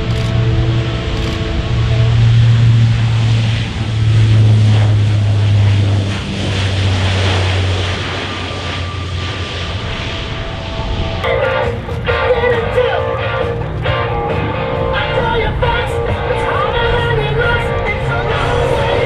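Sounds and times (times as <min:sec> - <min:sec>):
aircraft engines flying past: 0:00.0 - 0:19.0.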